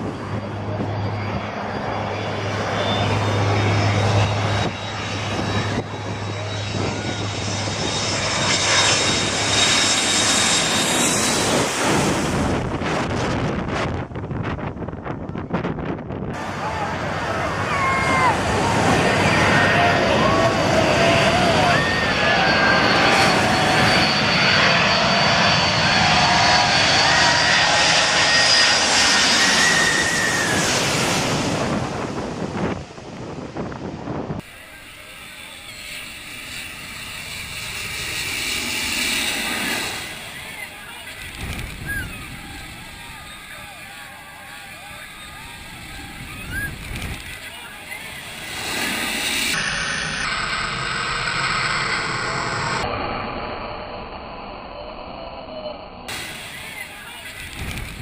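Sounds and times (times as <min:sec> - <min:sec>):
jet airliner passing overhead: 0:00.0 - 0:58.0.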